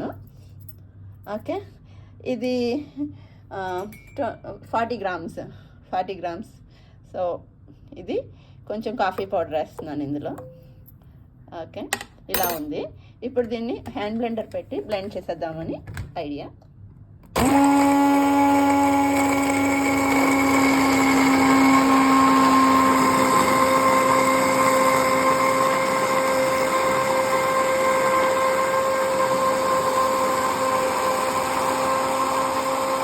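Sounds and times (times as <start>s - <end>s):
hand blender motor whine: 17.4s - 33.0s.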